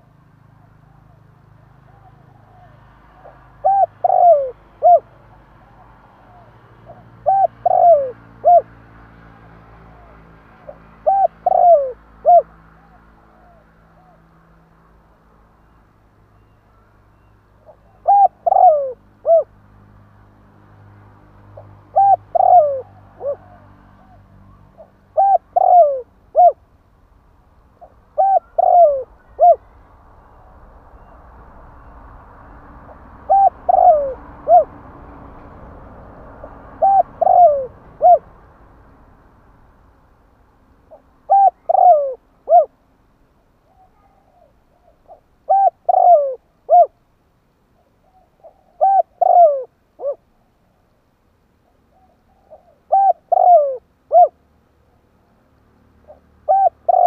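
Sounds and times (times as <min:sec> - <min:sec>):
dove cooing: 0:00.0 - 0:08.8, 0:09.8 - 0:14.2, 0:17.6 - 0:19.5, 0:21.6 - 0:26.6, 0:27.8 - 0:29.8, 0:32.9 - 0:34.8, 0:36.4 - 0:38.4, 0:40.9 - 0:42.8, 0:43.7 - 0:47.0, 0:47.8 - 0:50.3, 0:51.9 - 0:54.4, 0:56.1 - 0:57.0.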